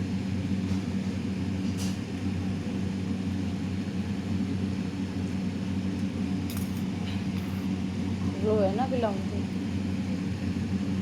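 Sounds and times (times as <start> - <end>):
motor humming: 6.5 - 7.7.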